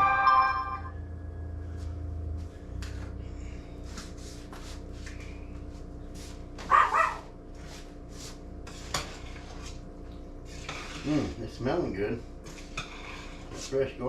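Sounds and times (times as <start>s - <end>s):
steady hum: 0.0s - 14.0s
dog barking: 6.6s - 7.3s.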